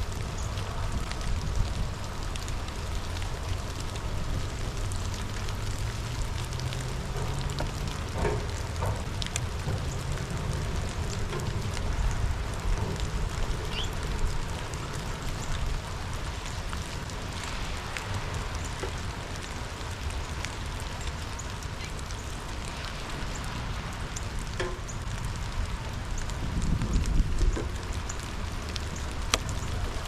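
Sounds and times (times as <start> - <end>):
raindrops ticking: 0.0 - 30.0
steady rain hiss: 0.0 - 30.0.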